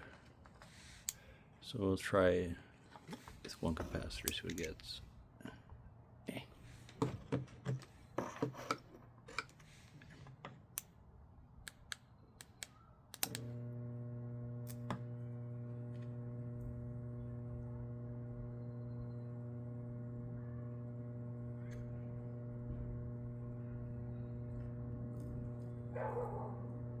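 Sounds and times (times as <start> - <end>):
switch click: 11.7 - 13.7, 14.5 - 15.2
transformer hum: 13.3 - 27.0.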